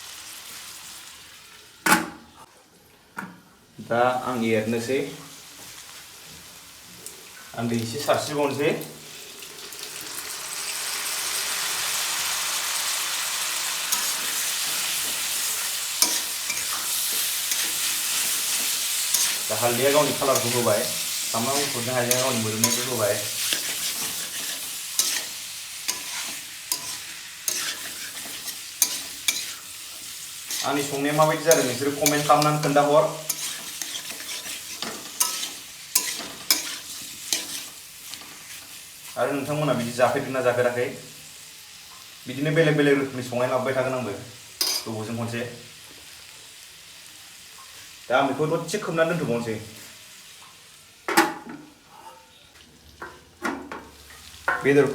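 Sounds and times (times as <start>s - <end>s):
curry sizzling in a hot pan: 0.0s - 1.8s, 4.8s - 51.1s
stirring ticks: 21.4s - 29.5s.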